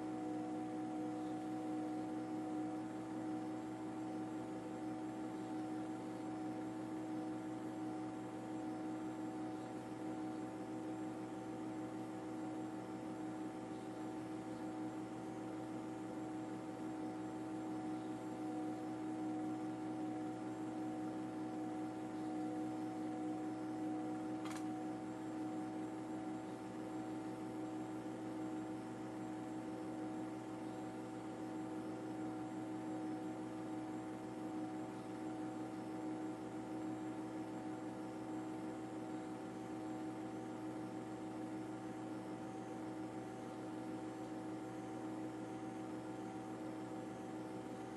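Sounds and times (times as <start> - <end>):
sharp click: 24.4 - 24.7.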